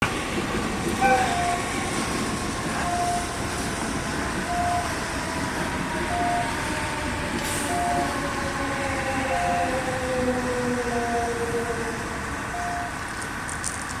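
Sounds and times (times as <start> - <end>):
diesel locomotive rumbling: 0.0 - 14.0
short beeps: 1.0 - 1.7, 2.8 - 3.3, 4.5 - 4.9, 12.5 - 13.0.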